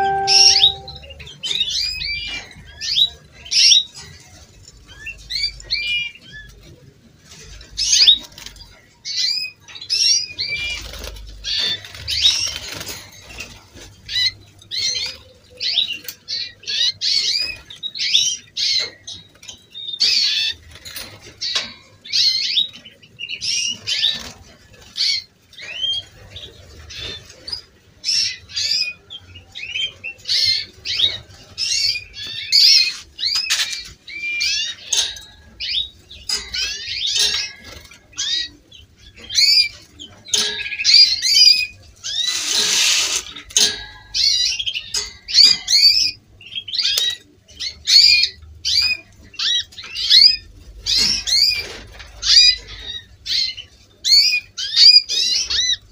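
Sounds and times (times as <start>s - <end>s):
canaries chirping and singing: 0.0s - 55.9s
rustling: 42.0s - 43.7s.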